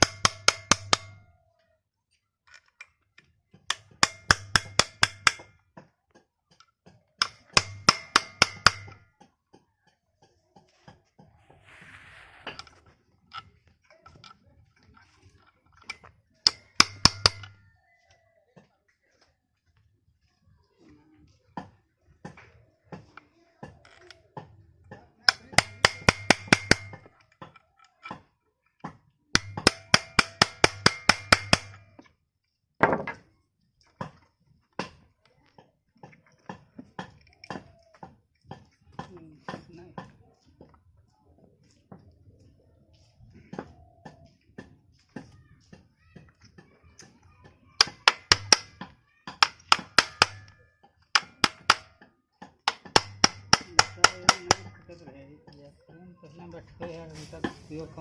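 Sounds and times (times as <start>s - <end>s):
hammer tapping on metal: 0.0s - 1.3s, 3.6s - 5.9s, 6.5s - 9.6s, 15.9s - 17.6s, 25.2s - 27.1s, 29.4s - 32.1s, 47.8s - 54.9s.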